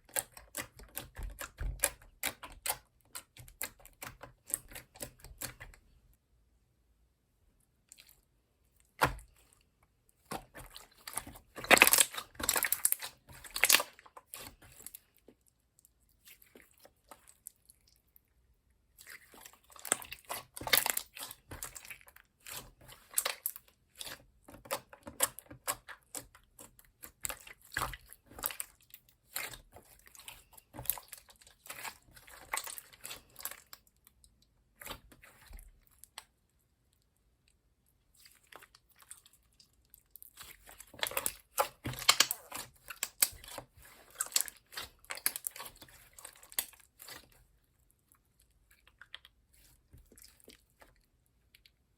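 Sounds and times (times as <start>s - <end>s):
slime squished by hand: 7.8s - 15.5s, 18.9s - 36.4s, 38.1s - 47.5s.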